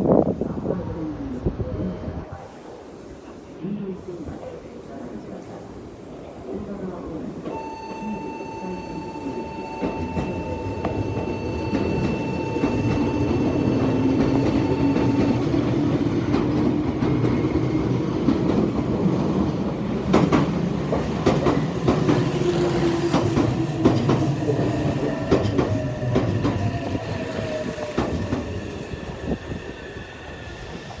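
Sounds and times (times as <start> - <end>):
train wheels clacking: 7.4 - 28.8.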